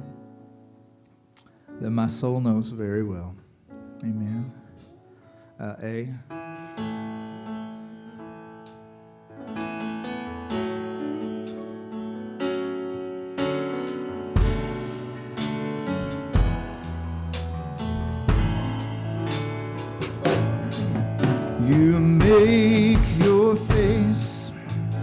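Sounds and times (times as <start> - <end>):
piano or keyboard: 0.0 - 25.0
guitar: 3.8 - 25.0
bass notes: 13.7 - 25.0.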